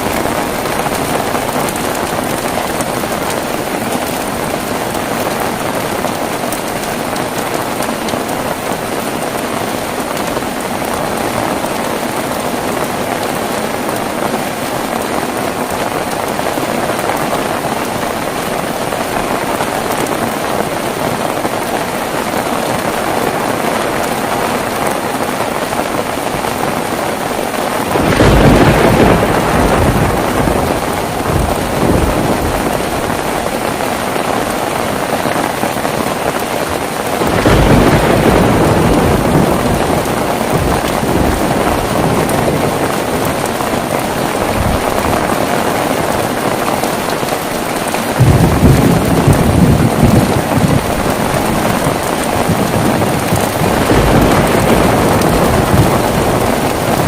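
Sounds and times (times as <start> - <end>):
heavy rain: 0.0 - 57.0
thunder claps rumbling: 27.7 - 57.0.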